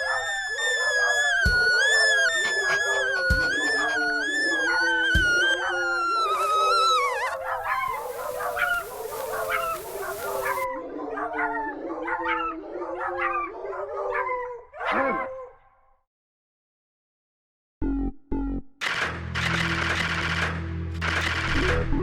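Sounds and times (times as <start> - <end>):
dog howling and yipping: 0.0 - 15.5
steady hiss: 7.4 - 10.6.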